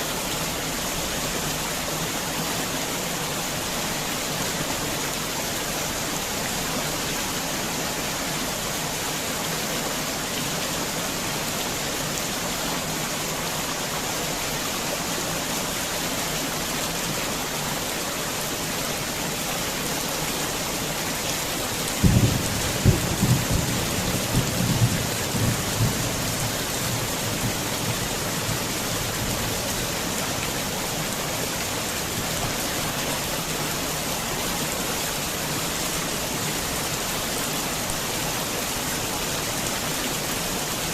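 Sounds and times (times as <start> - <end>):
heavy rain falling: 0.0 - 40.9
low thunderclap rumbling: 22.0 - 28.0.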